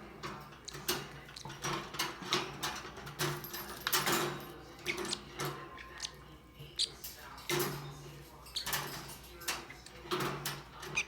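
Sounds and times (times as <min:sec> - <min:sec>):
metal bird cage rattling: 0:00.0 - 0:06.0, 0:06.6 - 0:11.0.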